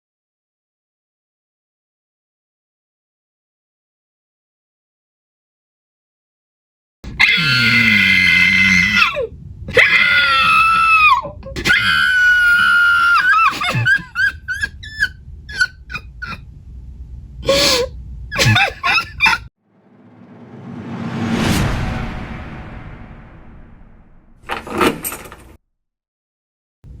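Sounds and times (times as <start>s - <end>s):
woman screaming and sobbing: 7.2s - 16.4s.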